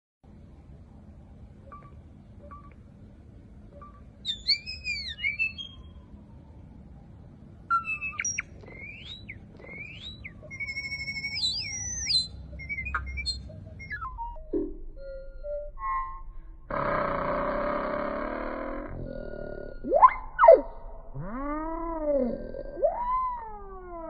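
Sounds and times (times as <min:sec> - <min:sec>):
low background hum: 0:00.2 - 0:24.0
bird chirping and whistling: 0:03.8 - 0:06.0, 0:07.7 - 0:16.2, 0:19.7 - 0:20.7.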